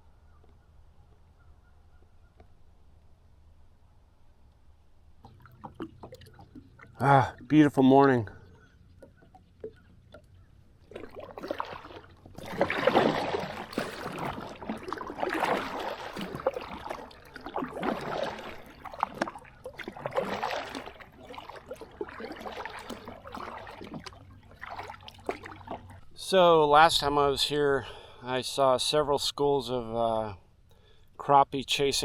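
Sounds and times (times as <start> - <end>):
kayak paddle splashing: 4.9 - 26.6
water dripping: 5.2 - 7.6.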